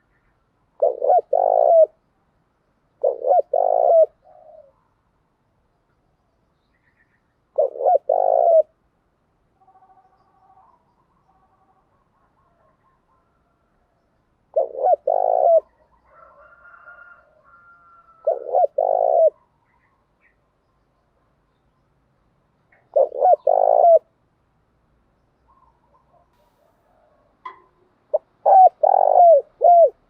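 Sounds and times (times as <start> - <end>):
dove cooing: 0.8 - 2.0, 3.0 - 4.9, 7.6 - 8.8, 14.5 - 19.8, 22.7 - 24.1, 25.5 - 30.0.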